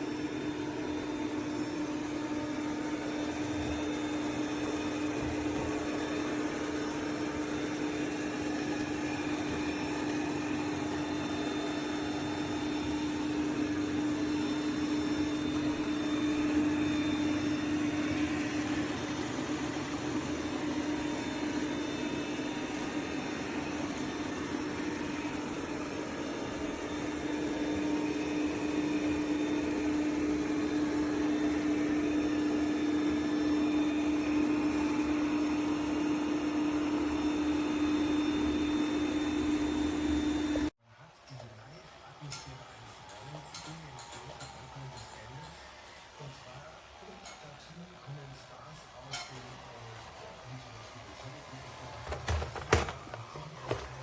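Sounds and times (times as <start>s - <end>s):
robot vacuum running: 0.0s - 40.7s, 41.4s - 54.0s.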